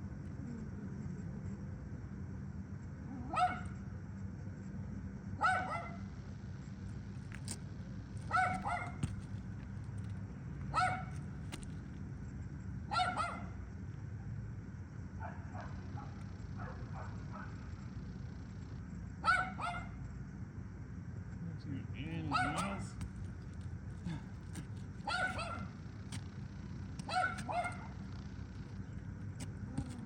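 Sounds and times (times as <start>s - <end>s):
dog barking: 3.2s - 3.8s, 5.4s - 6.1s, 8.3s - 9.0s, 10.7s - 11.2s, 12.9s - 13.6s, 15.2s - 17.7s, 19.2s - 20.0s, 22.3s - 23.0s, 25.0s - 25.8s, 27.0s - 28.1s.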